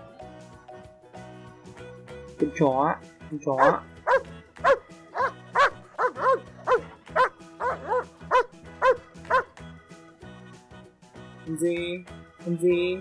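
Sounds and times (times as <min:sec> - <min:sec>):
background music: 0:00.0 - 0:13.0
dog barking: 0:03.6 - 0:09.5.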